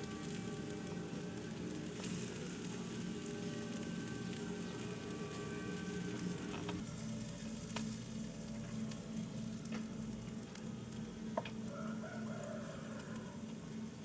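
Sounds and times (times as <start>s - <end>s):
food sizzling in hot fat: 0.0s - 10.8s.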